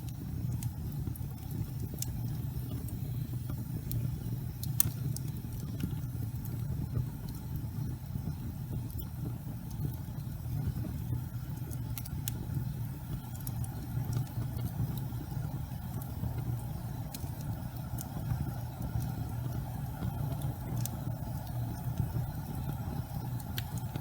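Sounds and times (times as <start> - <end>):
faint crackles and ticks: 0.0 - 24.0
gas fire flames rumbling: 0.0 - 24.0.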